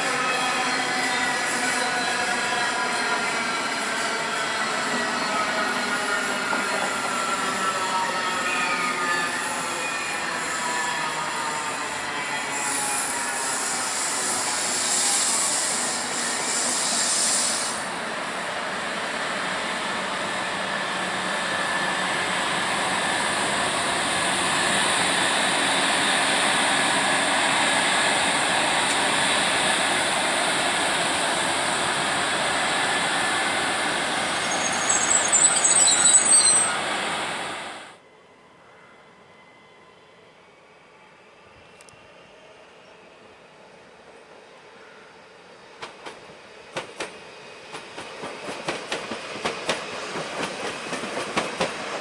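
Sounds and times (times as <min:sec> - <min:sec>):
train wheels rumbling on rail: 0:00.0 - 0:08.5, 0:09.1 - 0:37.9, 0:45.4 - 0:52.0
wheel squeal: 0:34.3 - 0:36.8.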